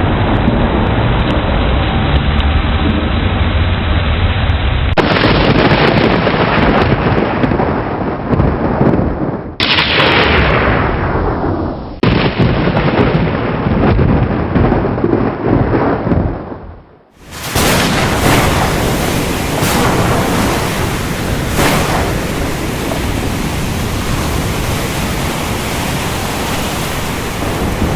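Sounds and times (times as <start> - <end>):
heavy rain: 0.0 - 7.0, 17.2 - 27.9
rumbling thunder: 0.0 - 27.9
sharp thunderclap: 4.9 - 27.9.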